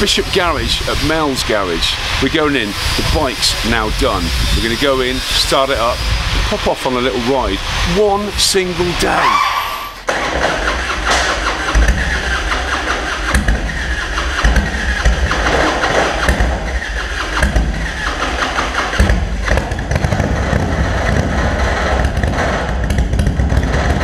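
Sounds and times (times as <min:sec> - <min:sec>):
motorcycle engine running: 0:10.1 - 0:24.0.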